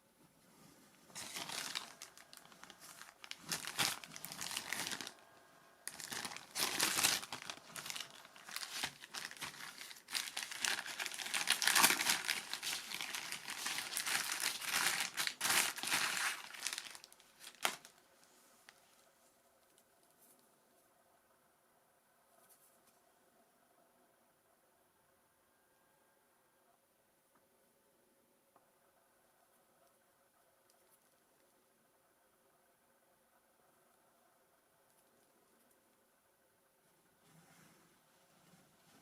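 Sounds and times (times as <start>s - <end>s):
plastic packaging crinkling: 1.1s - 5.2s, 5.8s - 18.0s.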